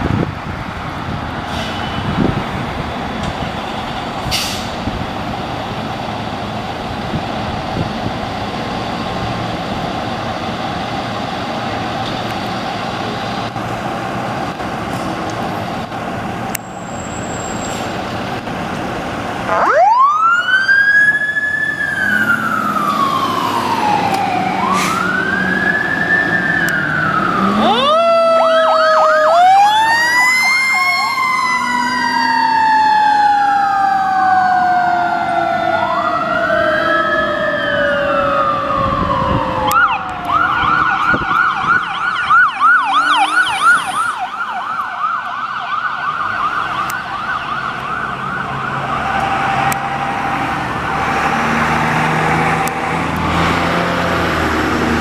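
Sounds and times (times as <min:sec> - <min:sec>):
sirens wailing: 0:00.0 - 0:55.0
siren yelping: 0:19.5 - 0:51.0.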